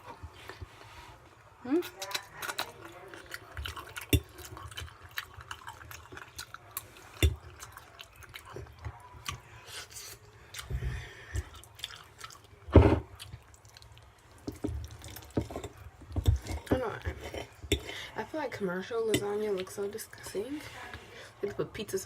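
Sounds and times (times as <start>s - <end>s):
wet chewing and lip-smacking: 1.8s - 16.7s.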